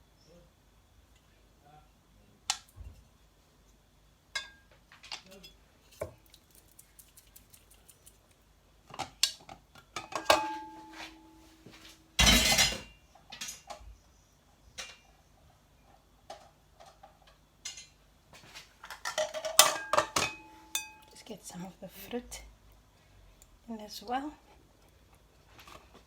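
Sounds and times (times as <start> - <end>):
kitchen utensils and bowls clinking: 12.2 - 13.6, 18.9 - 21.1.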